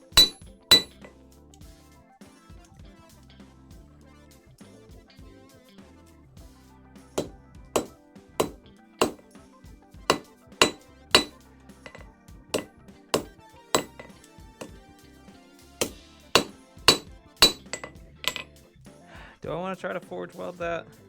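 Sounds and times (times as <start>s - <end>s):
hammer striking metal on anvil: 0.0s - 1.1s, 7.2s - 9.3s, 10.1s - 12.0s, 12.6s - 14.8s, 15.8s - 18.5s
background music: 0.0s - 21.0s.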